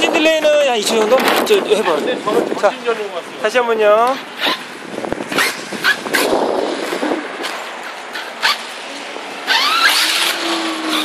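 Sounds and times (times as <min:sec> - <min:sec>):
wind buffeting microphone: 0:00.0 - 0:09.4
rc car motor whining: 0:09.4 - 0:11.0.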